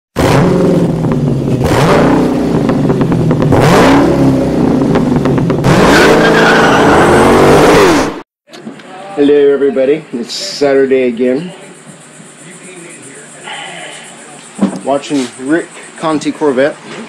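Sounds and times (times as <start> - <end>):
exhaust pops crackling: 0.2 - 5.8
car engine revving: 0.2 - 8.2.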